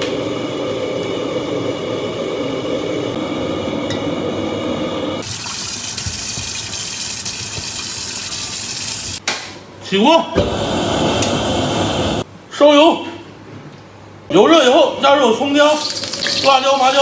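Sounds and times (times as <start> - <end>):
pot boiling: 0.5 - 9.2, 15.6 - 17.0
ladle clinking: 15.7 - 17.0.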